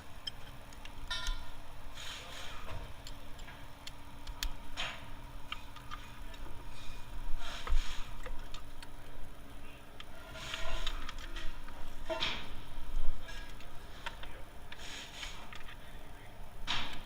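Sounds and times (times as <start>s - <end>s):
faint steady hum: 0.0s - 17.0s
hand tools and parts clicking: 0.2s - 1.5s, 2.6s - 6.5s
tools scraping: 4.8s - 8.8s, 10.0s - 12.6s, 13.2s - 15.8s.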